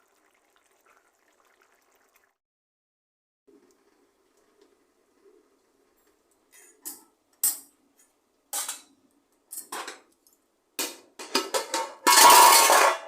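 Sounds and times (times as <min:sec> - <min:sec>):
metal pots clanking and scraping: 0:06.0 - 0:10.1, 0:10.8 - 0:13.0.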